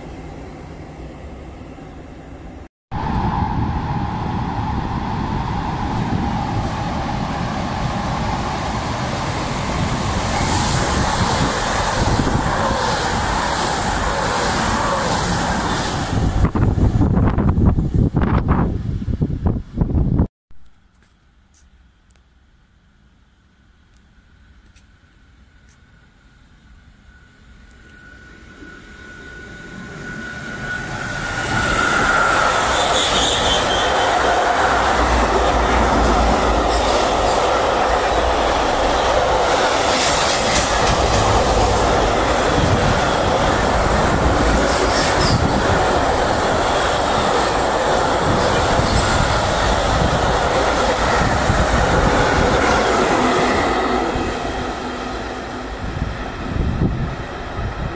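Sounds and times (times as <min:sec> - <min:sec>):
freight train passing: 0:00.0 - 0:20.0, 0:22.8 - 0:57.9
wheel squeals: 0:27.7 - 0:34.4, 0:44.5 - 0:46.1.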